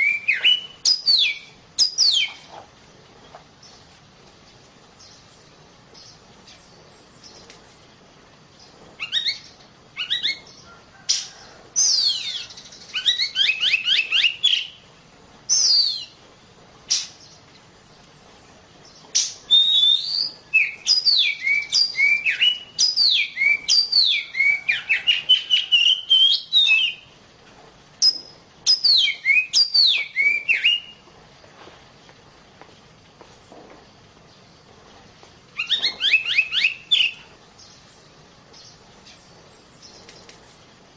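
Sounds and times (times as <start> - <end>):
bird singing whistled phrases: 0.0 - 2.4, 9.0 - 10.4, 11.8 - 14.8, 15.5 - 16.2, 19.2 - 27.1, 28.0 - 31.0, 35.6 - 37.3.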